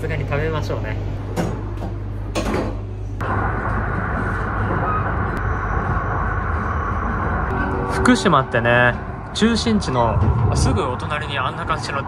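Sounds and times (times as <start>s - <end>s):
train interior low hum: 0.0s - 12.0s
train rushing noise: 3.2s - 12.0s.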